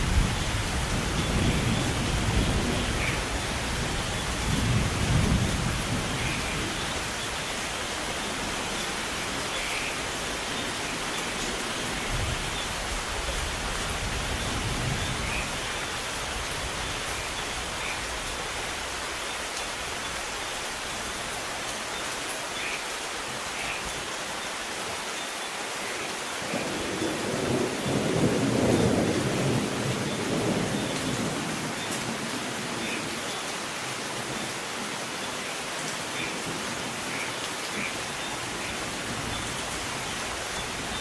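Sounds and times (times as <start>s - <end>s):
thunder rumbling: 0.0s - 7.5s
steady rain: 0.0s - 41.0s.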